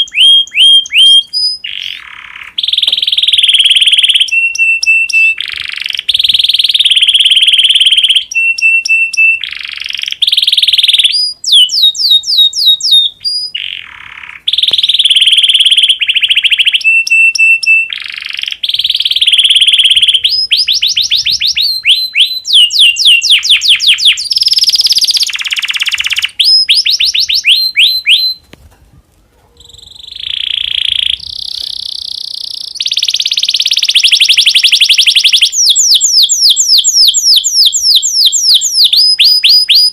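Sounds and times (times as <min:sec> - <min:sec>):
canary singing trills: 0:00.0 - 0:28.5, 0:29.4 - 0:39.9.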